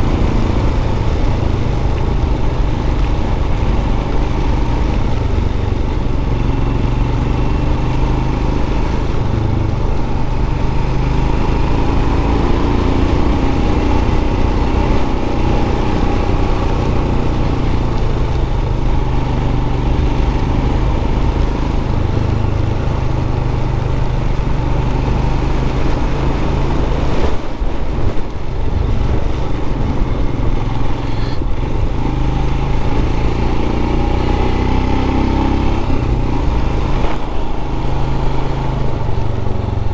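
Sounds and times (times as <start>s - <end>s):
motorcycle engine running: 0.0s - 39.9s
wind noise on microphone: 8.5s - 39.9s.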